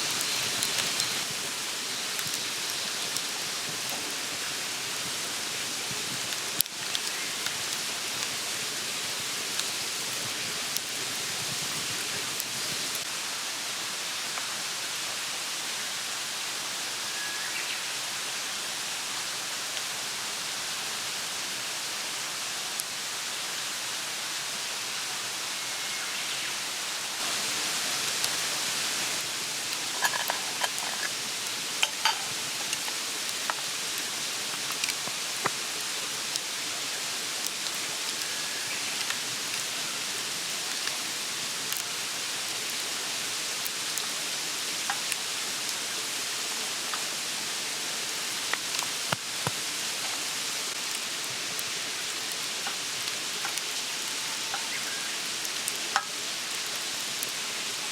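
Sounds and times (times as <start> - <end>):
fire popping and crackling: 0.0 - 13.0, 27.2 - 45.7, 48.0 - 54.7
campfire hissing: 0.0 - 57.9.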